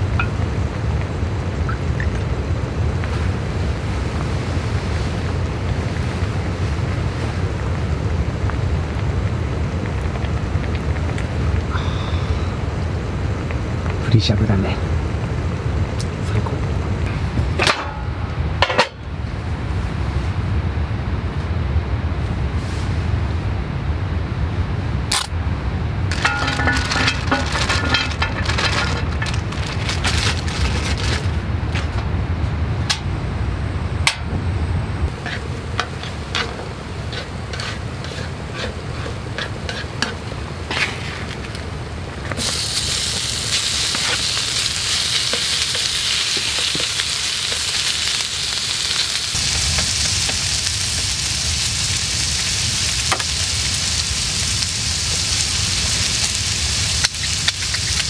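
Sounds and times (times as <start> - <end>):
food sizzling: 0.0 - 14.0, 26.1 - 31.5, 32.9 - 58.0
spatula scraping griddle: 26.1 - 30.3, 35.2 - 41.4.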